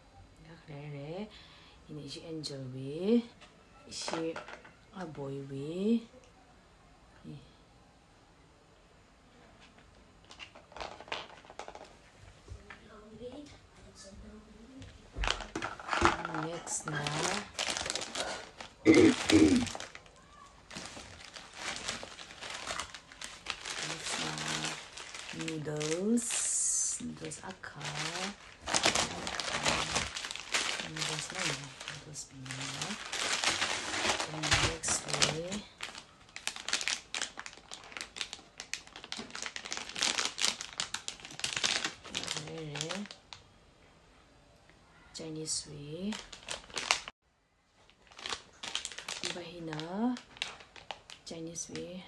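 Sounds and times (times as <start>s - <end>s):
packaging crinkling and rustling: 9.6s - 12.0s, 15.2s - 43.5s, 46.0s - 47.1s, 47.8s - 51.8s
short loud vocal sound: 18.9s - 19.7s.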